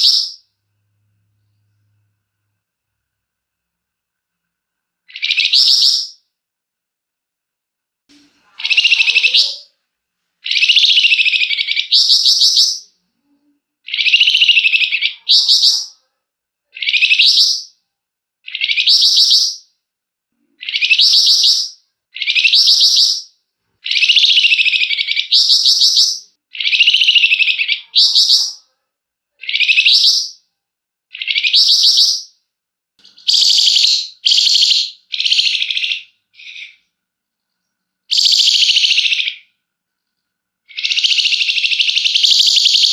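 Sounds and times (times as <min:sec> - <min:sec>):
songbird harsh rattling calls: 0:05.1 - 0:06.2, 0:10.4 - 0:12.8, 0:13.9 - 0:15.9, 0:20.6 - 0:28.6, 0:33.0 - 0:36.8, 0:38.1 - 0:39.5, 0:40.7 - 0:42.9.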